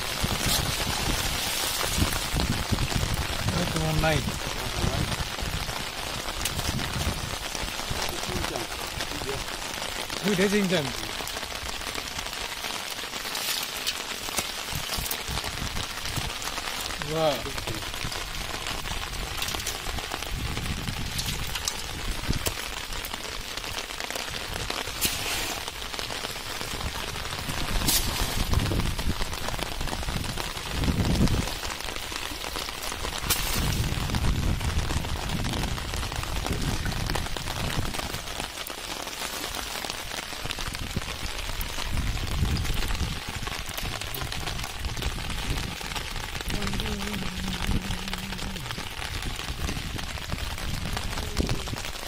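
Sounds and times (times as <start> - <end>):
rain falling on water: 0.0 - 52.0
low rumbles: 40.8 - 51.9.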